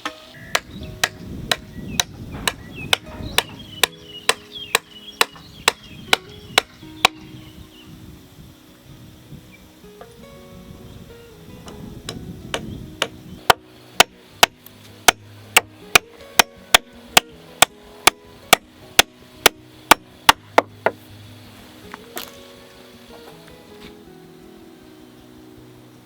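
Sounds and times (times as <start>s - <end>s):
hand tool striking: 0.0s - 7.3s, 12.1s - 21.0s
soft background music: 0.0s - 26.0s.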